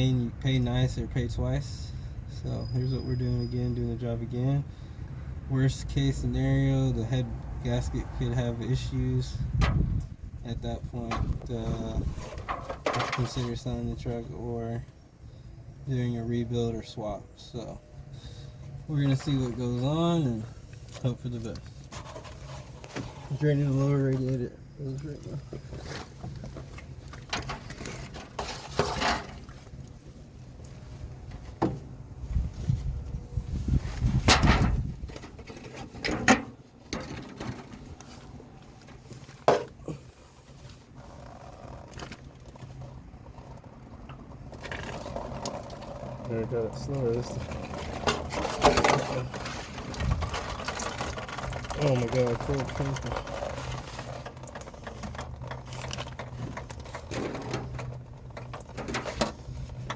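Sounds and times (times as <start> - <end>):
low rumbling handling noise: 5.6 - 59.9
knocks and clunks: 9.5 - 13.8, 31.3 - 32.0, 34.2 - 37.9.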